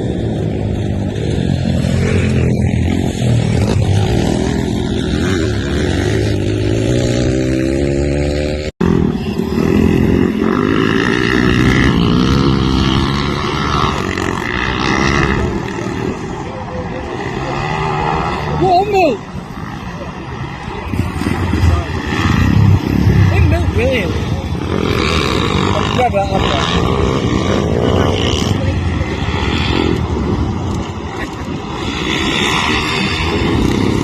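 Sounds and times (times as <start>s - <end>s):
pit bike engine revving: 0.0s - 34.0s.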